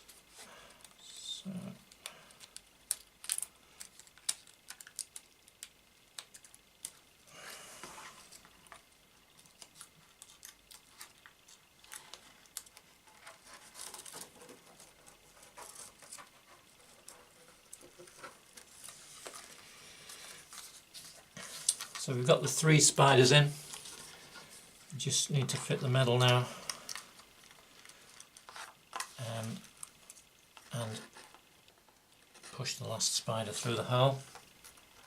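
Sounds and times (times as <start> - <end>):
plastic film rustling: 0.0 - 7.1, 7.8 - 35.0.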